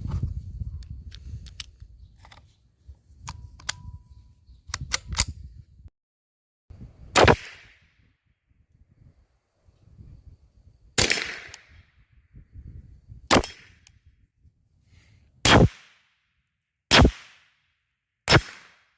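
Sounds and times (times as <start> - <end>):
rifle shots: 7.2 - 7.7, 11.0 - 11.6, 15.4 - 16.0, 16.9 - 17.4, 18.3 - 18.9.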